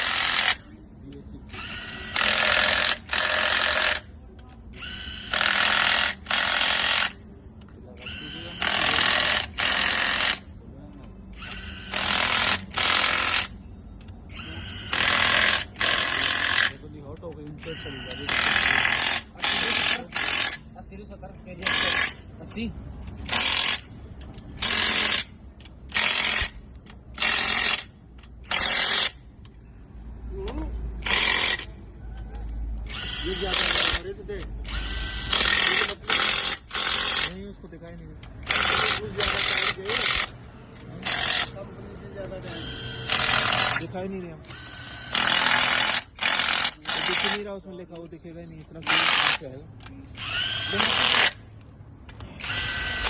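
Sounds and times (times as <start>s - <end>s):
air tool bursts: 0.0s - 0.7s, 1.5s - 4.1s, 4.7s - 7.2s, 8.0s - 10.5s, 11.3s - 13.6s, 14.3s - 16.8s, 17.6s - 20.7s, 21.6s - 22.3s, 23.2s - 24.0s, 24.6s - 29.2s, 31.0s - 31.7s, 32.8s - 37.5s, 38.4s - 40.4s, 41.0s - 41.6s, 42.4s - 47.6s, 48.8s - 49.5s, 50.1s - 51.5s, 52.2s - 53.0s
ratchet wrench rattling: 11.4s - 29.6s, 30.4s - 31.8s, 32.8s - 41.6s, 42.3s - 53.0s.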